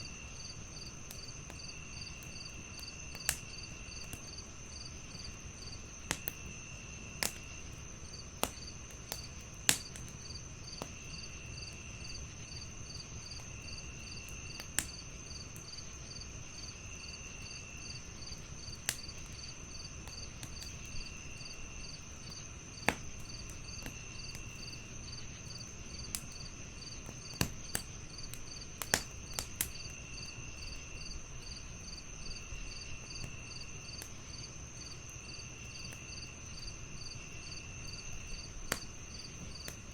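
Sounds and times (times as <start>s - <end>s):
cricket chirping: 0.0s - 39.9s
cricket trilling: 0.0s - 39.9s
wood fire crackling and popping: 0.0s - 39.9s.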